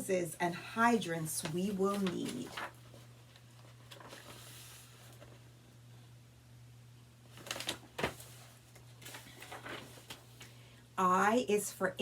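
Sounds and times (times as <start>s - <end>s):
faint electrical hum: 0.0s - 12.0s
book page rustling: 1.2s - 5.4s, 7.3s - 10.6s.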